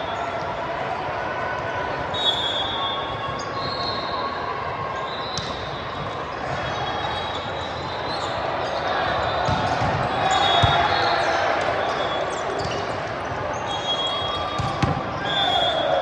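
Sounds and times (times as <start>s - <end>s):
hubbub of voices in hall: 0.0s - 16.0s
shoes squeaking on court: 9.4s - 15.9s
volleyball hit: 9.5s - 11.1s, 14.4s - 15.2s.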